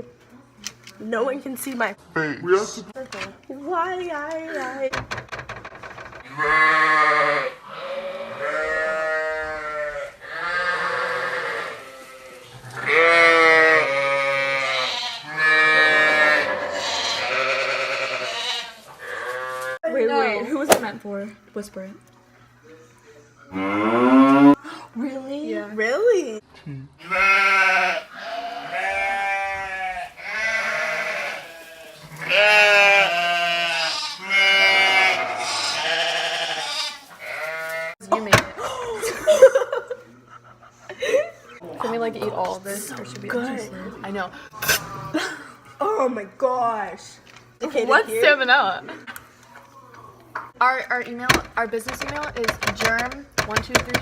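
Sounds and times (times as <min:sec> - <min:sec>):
wavering bleat-like cries: 0:06.2 - 0:19.8, 0:23.5 - 0:24.6, 0:27.0 - 0:38.0.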